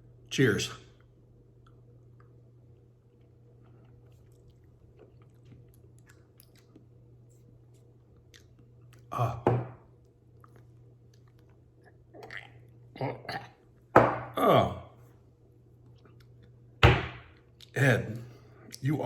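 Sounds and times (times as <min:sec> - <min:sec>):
lip smacks and tongue clicks: 0:01.0 - 0:09.1, 0:10.0 - 0:12.8, 0:15.8 - 0:16.6.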